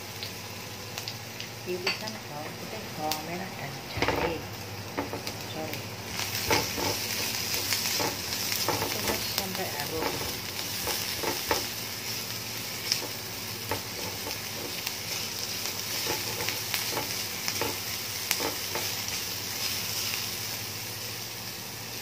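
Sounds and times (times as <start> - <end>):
garlic sizzling in hot oil: 0.0 - 22.0
spatula scraping and tapping pan: 4.0 - 5.3, 6.4 - 11.8, 12.8 - 19.0.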